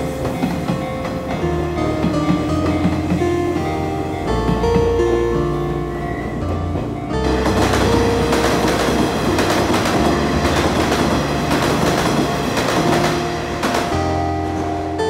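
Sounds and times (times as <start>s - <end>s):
train wheels clattering over joints: 0.0s - 3.8s, 6.4s - 14.2s.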